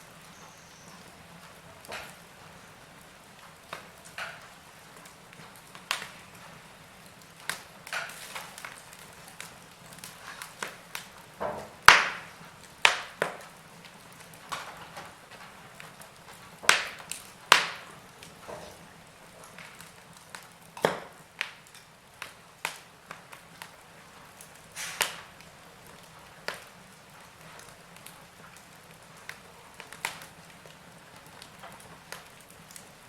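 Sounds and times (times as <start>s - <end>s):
faint steady hiss: 0.0s - 33.0s
wood fire popping and snapping: 0.0s - 33.0s.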